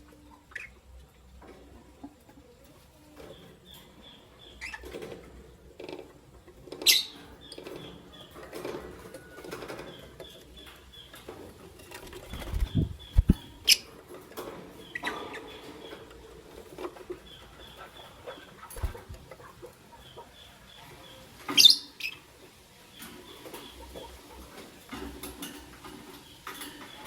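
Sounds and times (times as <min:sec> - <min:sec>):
birds fluttering wings: 0:11.2 - 0:15.2, 0:18.2 - 0:19.7.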